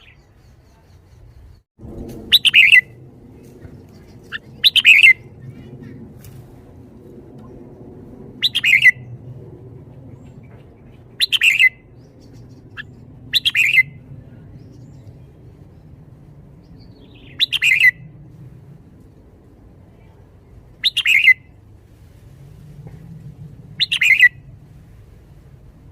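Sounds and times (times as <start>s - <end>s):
bulbul singing: 3.7s - 5.4s, 10.3s - 14.0s, 16.6s - 18.1s, 20.8s - 21.5s.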